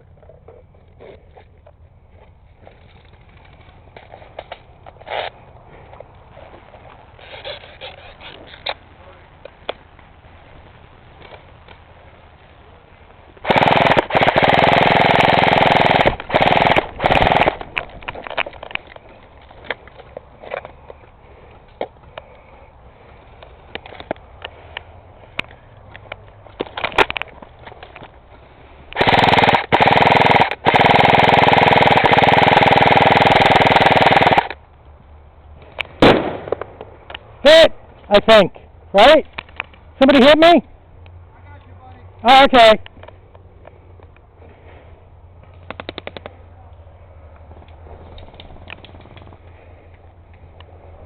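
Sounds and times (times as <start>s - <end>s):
airsoft gun full-auto bursts: 13.4s - 17.7s, 29.0s - 34.6s.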